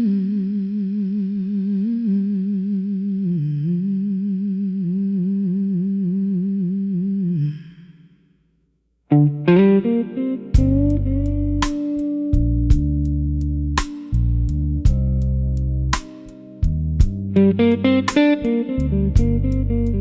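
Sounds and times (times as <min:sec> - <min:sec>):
guitar plucking notes: 0:09.1 - 0:20.0.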